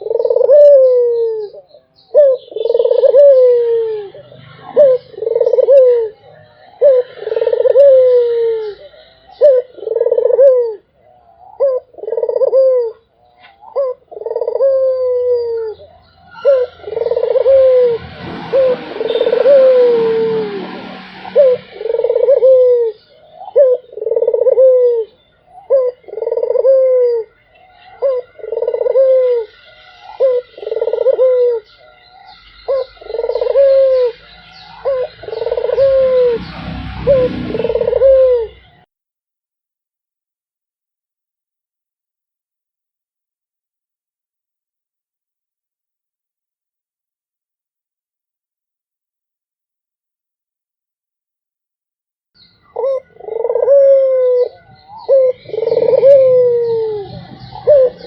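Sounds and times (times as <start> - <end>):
dove cooing: 0.0 - 38.8, 52.6 - 58.0
rushing noise: 16.1 - 23.4, 33.0 - 38.8.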